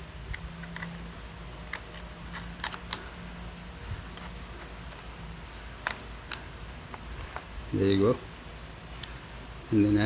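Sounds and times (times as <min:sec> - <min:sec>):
metal clicks: 0:01.6 - 0:03.1.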